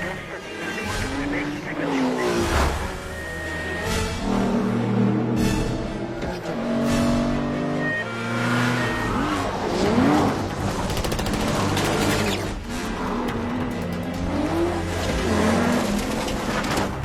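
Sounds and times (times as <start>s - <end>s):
car engines running hard: 0.0s - 17.0s
music: 0.0s - 17.0s
rapid sharp cracks: 10.6s - 14.7s.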